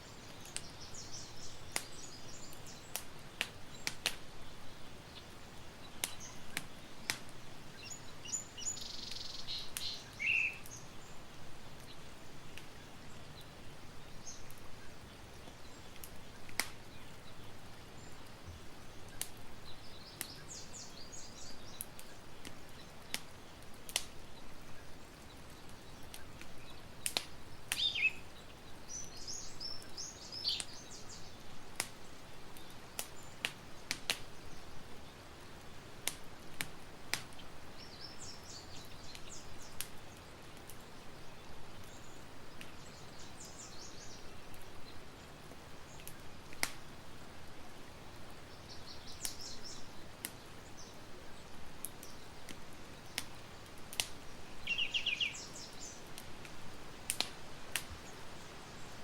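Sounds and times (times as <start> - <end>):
campfire crackling: 0.0 - 59.0
small birds chirping: 0.0 - 59.0.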